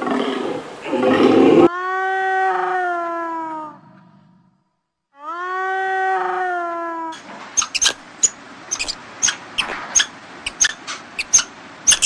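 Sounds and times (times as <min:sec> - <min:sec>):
hyena howling call: 0:01.6 - 0:03.9, 0:05.2 - 0:07.2
high sharp chirps: 0:07.6 - 0:12.0.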